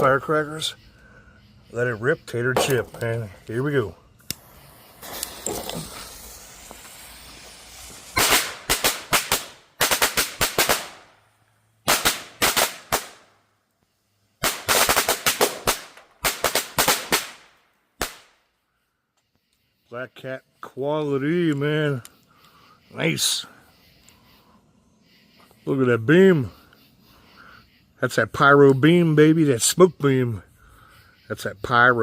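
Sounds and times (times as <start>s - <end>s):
firecrackers banging: 4.2s - 11.2s, 11.8s - 13.3s, 14.4s - 18.4s
firecracker fuse hiss: 4.2s - 13.3s, 14.4s - 18.4s.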